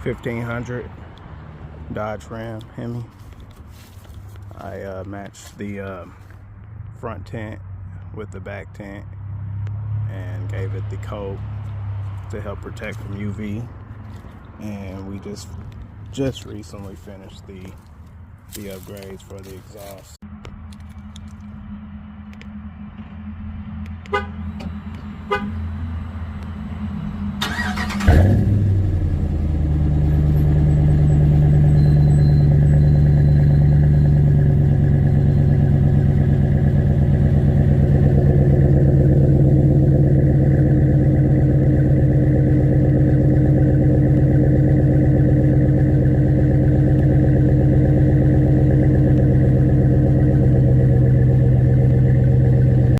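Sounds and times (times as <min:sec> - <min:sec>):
starter cranking: 0:27.4 - 0:28.4
engine fast idle: 0:27.4 - 0:29.3.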